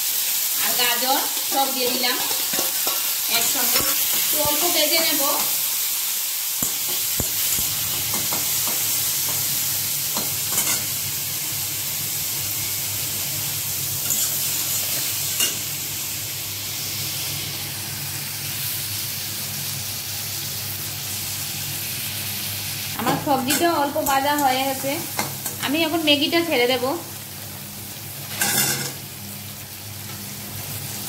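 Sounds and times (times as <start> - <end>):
vegetables sizzling in hot oil: 0.0 - 31.0
spatula scraping and tapping pan: 1.4 - 3.1, 6.6 - 9.5.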